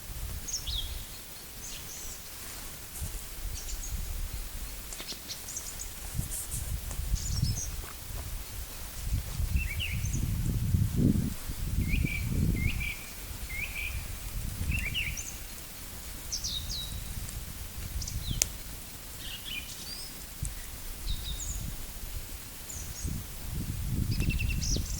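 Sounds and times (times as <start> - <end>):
wind rumble on microphone: 0.0 - 24.9
songbirds chirping: 0.4 - 24.9.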